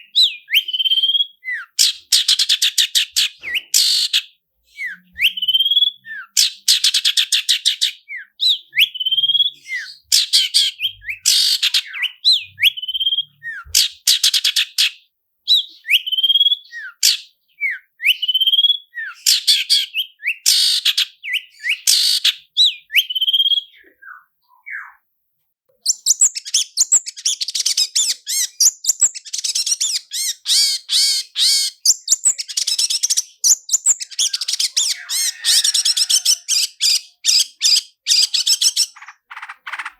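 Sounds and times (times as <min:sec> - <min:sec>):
shrike singing: 0:08.1 - 0:14.0, 0:29.9 - 0:39.9.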